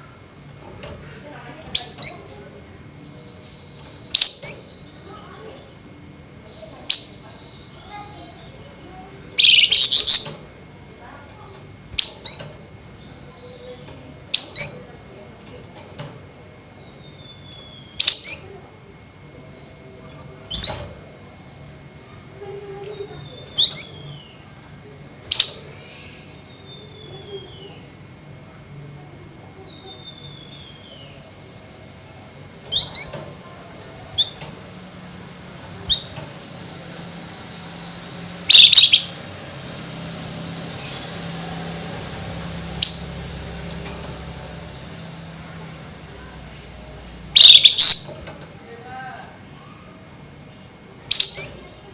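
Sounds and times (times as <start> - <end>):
bird chip notes: 6.6 - 10.6, 32.5 - 46.0, 47.3 - 48.2.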